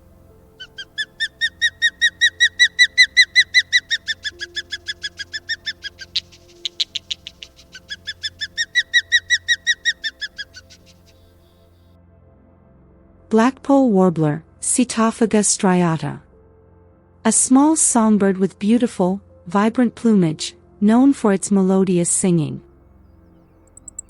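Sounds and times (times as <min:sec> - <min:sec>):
osprey calling: 0:00.6 - 0:11.4, 0:23.7 - 0:24.0.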